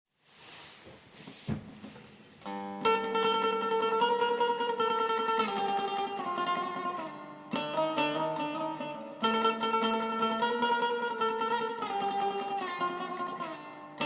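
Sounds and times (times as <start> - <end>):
faint hiss: 0.2 - 2.5
soft knock: 1.3 - 2.0
plucked saz melody: 2.4 - 14.0.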